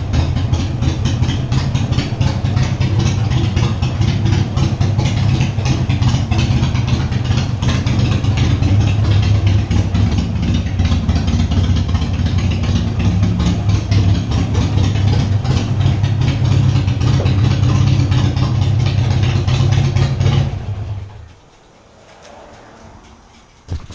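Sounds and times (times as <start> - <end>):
motorcycle engine idling: 0.0 - 23.9.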